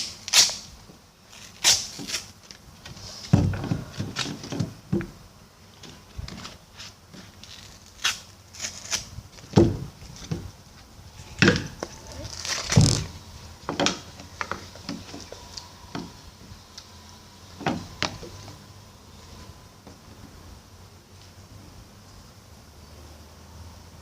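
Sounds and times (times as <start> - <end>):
loud thumps: 3.3 - 5.2, 9.5 - 10.6, 12.6 - 14.1.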